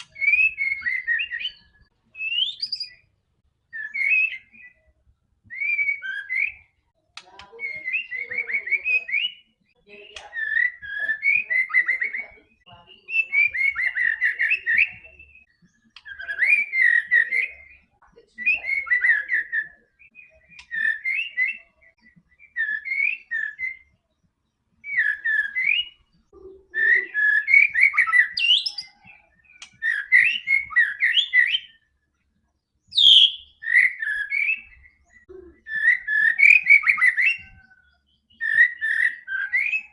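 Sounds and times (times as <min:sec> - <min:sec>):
bird singing whistled phrases: 0:00.0 - 0:03.1, 0:03.7 - 0:06.8, 0:07.4 - 0:24.1, 0:24.8 - 0:31.8, 0:32.8 - 0:39.9.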